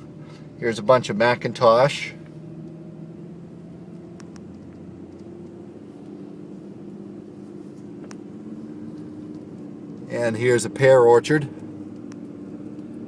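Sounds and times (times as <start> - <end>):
vehicle engine humming: 0.0 - 13.0
faint clicks: 3.9 - 6.2.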